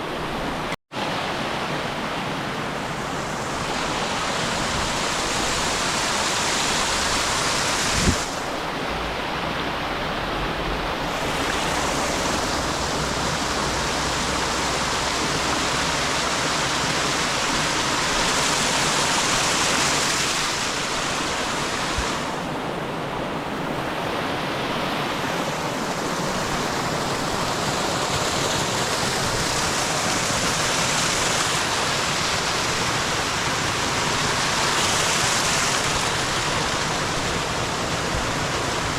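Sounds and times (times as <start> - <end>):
rushing river whitewater: 0.0 - 38.9.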